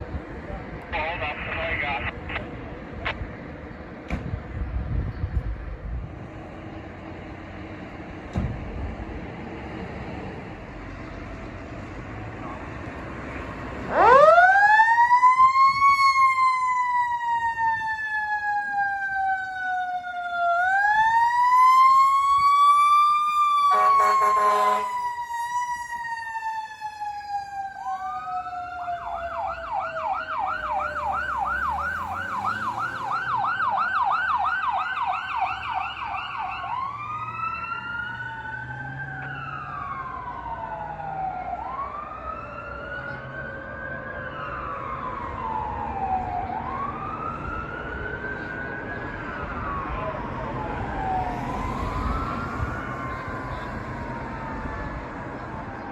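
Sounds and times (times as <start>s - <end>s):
fire truck siren: 0.9s - 3.2s, 6.4s - 55.9s
second siren wailing: 13.8s - 55.9s
air horn blast: 23.7s - 24.9s.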